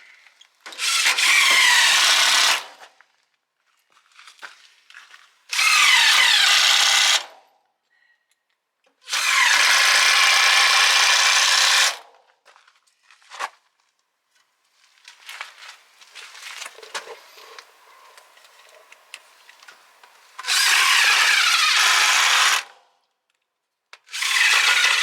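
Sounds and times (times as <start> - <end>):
cordless drill drilling into wood: 0.7 - 2.8, 5.5 - 7.4, 9.1 - 12.1, 20.3 - 22.8, 24.1 - 25.0.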